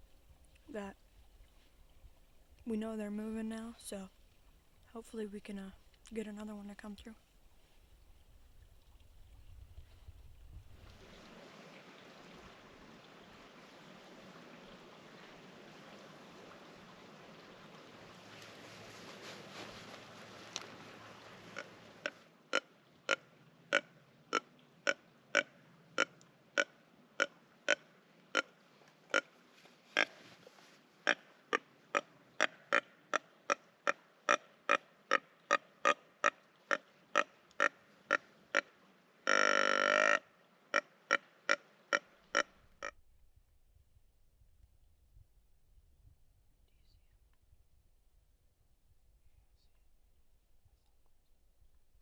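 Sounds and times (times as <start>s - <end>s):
deer grunt call: 39.3s - 40.2s.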